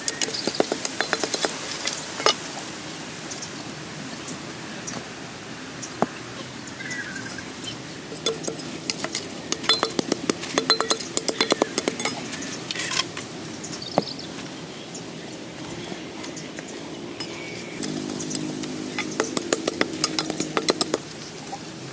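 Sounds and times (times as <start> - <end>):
light ringing clinks and knocks: 0.4 - 2.4, 8.2 - 13.2.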